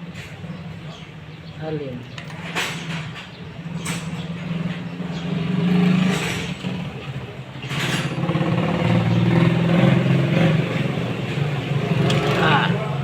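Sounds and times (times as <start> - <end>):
motorcycle engine revving: 3.6 - 13.0.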